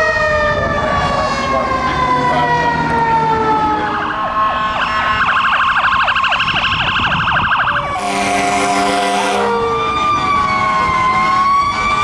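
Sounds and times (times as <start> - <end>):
rapid yelping siren: 0.0 - 12.0
wailing siren: 0.0 - 12.0
air horn blast: 7.8 - 9.8.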